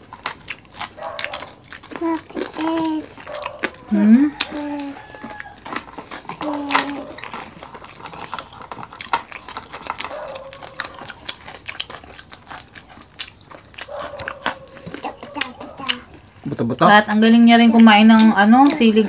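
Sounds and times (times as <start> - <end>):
chewing and crunching food: 0.0 - 19.0
person humming: 2.0 - 3.1, 3.9 - 5.2, 6.4 - 7.2.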